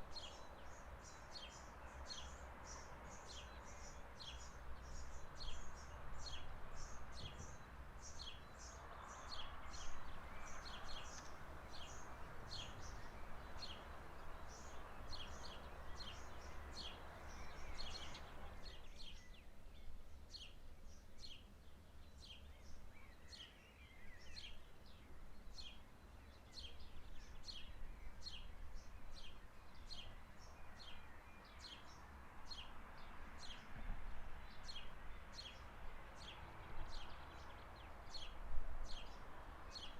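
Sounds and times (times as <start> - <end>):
bird chirping: 0.1 - 39.9
soft rushing hiss: 9.3 - 18.8.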